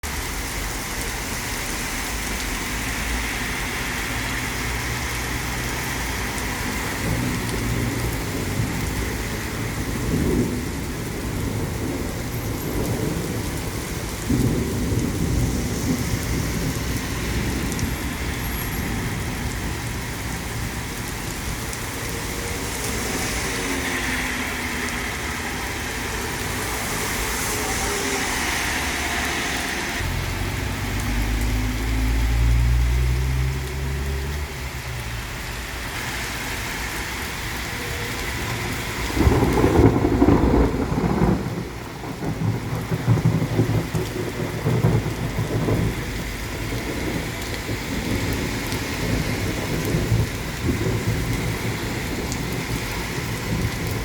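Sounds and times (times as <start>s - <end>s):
steady rain: 0.0s - 54.0s
rumbling thunder: 6.7s - 21.1s, 38.2s - 54.0s
sharp thunderclaps: 9.7s - 18.0s, 39.0s - 54.0s.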